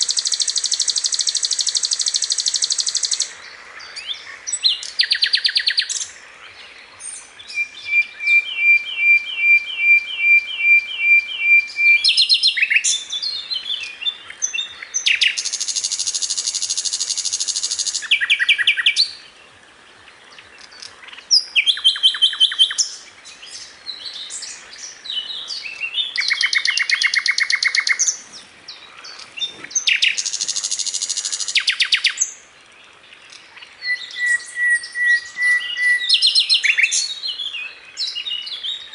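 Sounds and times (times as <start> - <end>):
bird singing trills: 0.0 - 19.3, 20.3 - 32.5, 33.2 - 38.9.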